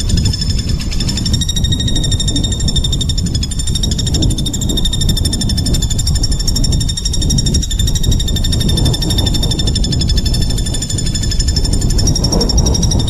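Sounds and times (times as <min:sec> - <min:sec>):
songbird buzzy trill: 0:00.0 - 0:13.0.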